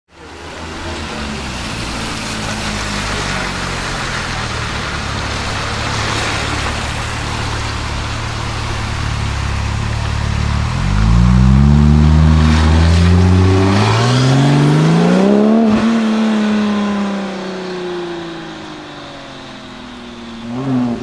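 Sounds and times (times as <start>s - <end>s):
car engine idling: 0.2s - 14.9s.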